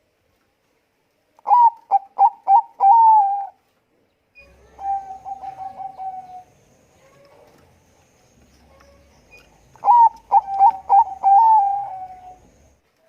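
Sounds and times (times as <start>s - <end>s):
dove cooing: 1.4s - 3.6s, 4.4s - 7.6s, 8.7s - 12.8s.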